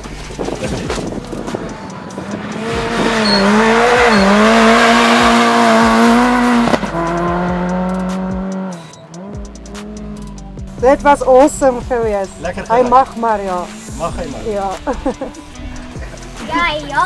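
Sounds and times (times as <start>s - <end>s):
tyres on gravel: 0.0s - 7.4s
rally car engine revving: 0.0s - 16.5s.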